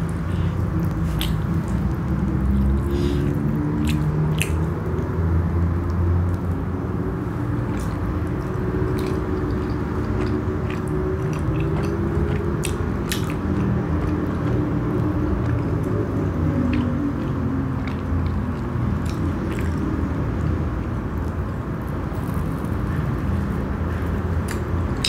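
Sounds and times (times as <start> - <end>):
wet mouth clicks: 0.0 - 5.1, 7.7 - 14.7
chewing soft bread: 0.0 - 25.0.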